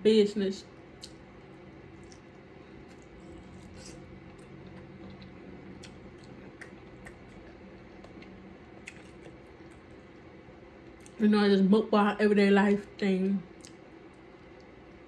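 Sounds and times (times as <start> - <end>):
wet chewing with clicks: 1.0 - 1.2, 1.9 - 10.1, 10.9 - 11.2, 13.5 - 14.8.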